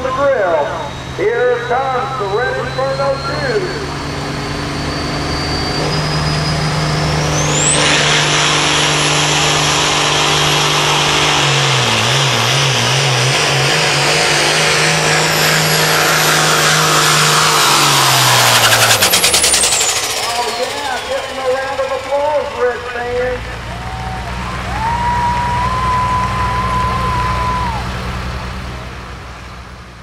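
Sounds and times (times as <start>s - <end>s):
loud diesel tractor engine: 0.0s - 30.0s
turbo whistle: 0.6s - 13.0s, 17.3s - 27.9s.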